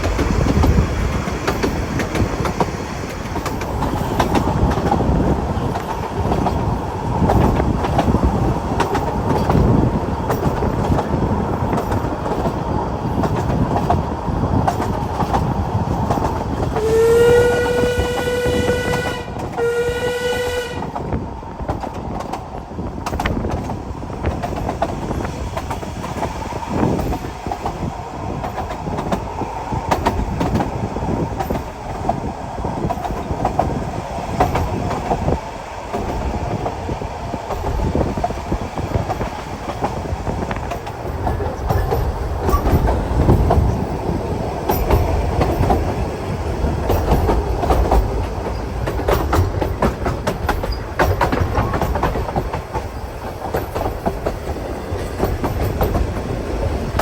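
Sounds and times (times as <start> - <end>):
train clickety-clack on track: 0.0 - 57.0
train whistle: 16.8 - 21.1.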